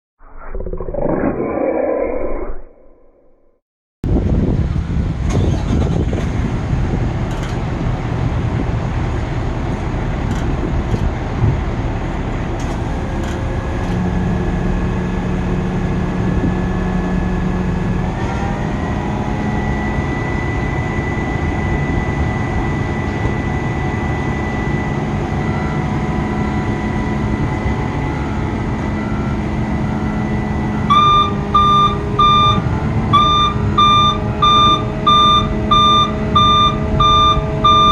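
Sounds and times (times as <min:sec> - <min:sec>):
truck engine running: 0:04.1 - 0:37.9
beeping alarm: 0:30.7 - 0:37.9.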